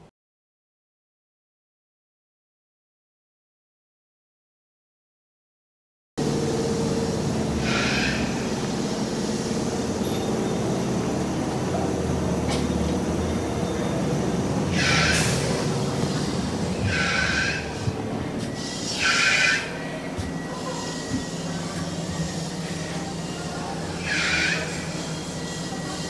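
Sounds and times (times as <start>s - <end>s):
train rumbling: 6.2s - 26.0s.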